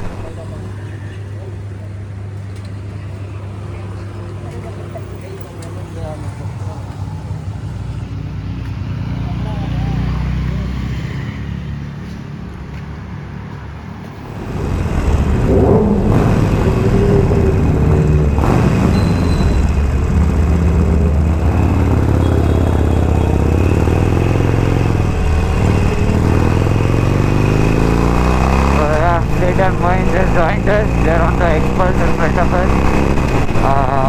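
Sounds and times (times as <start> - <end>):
motorcycle engine running: 0.0 - 0.8, 14.1 - 34.0.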